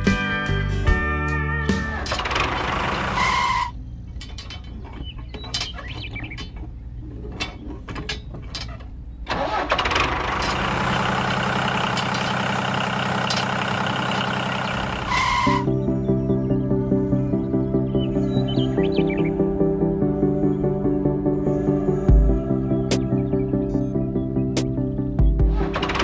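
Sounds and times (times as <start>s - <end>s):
machine engine running: 1.8s - 3.7s, 9.4s - 15.7s, 25.4s - 26.0s.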